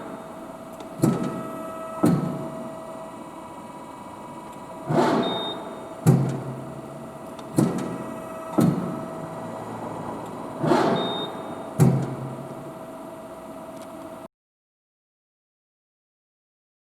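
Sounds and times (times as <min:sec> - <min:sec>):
press brake clunks: 0:00.0 - 0:02.7, 0:04.5 - 0:12.7
steady machine hum: 0:00.0 - 0:14.3.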